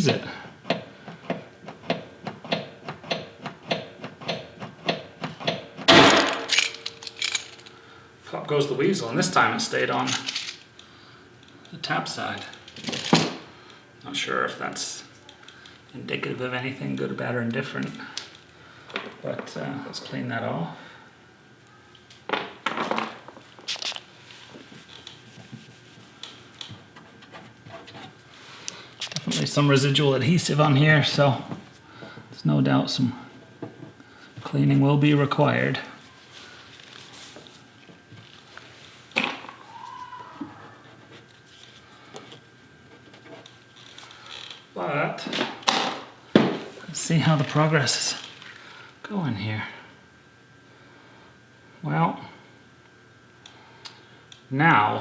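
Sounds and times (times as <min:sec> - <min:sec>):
crinkling rubbing scrapes: 0:23.6 - 0:26.6, 0:36.2 - 0:39.1
short sharp hiss: 0:23.7 - 0:24.1.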